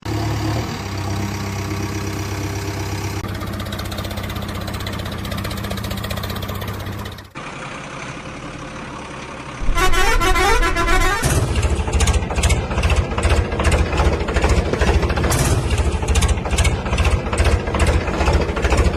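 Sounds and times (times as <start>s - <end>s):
diesel machinery engine: 0.0s - 18.9s
stepping horn tones: 9.6s - 11.7s
diesel engine pulsing beat: 9.6s - 18.9s.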